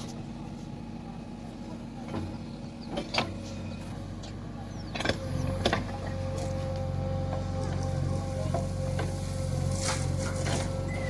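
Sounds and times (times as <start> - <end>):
diesel engine running: 0.0 - 11.0
hydraulic whine: 7.3 - 11.0.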